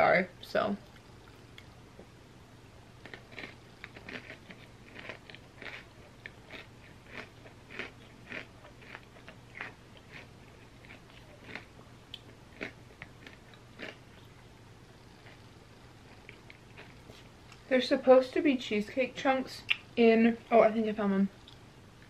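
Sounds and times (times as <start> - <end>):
chewing and crunching: 3.0 - 17.6.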